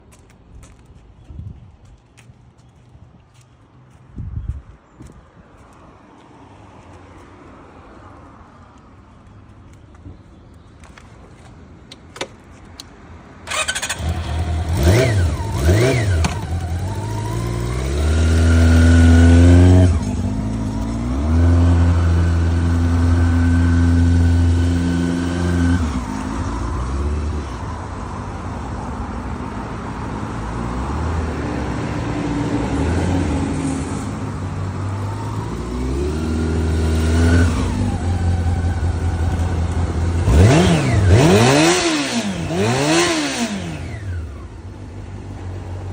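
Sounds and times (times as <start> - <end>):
motorcycle engine revving: 13.5 - 27.8, 32.4 - 44.5.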